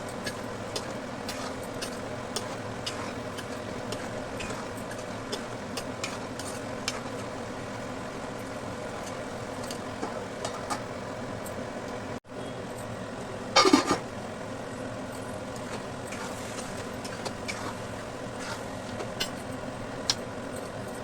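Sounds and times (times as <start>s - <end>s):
curry sizzling in a pan: 0.0s - 10.8s, 15.1s - 19.7s.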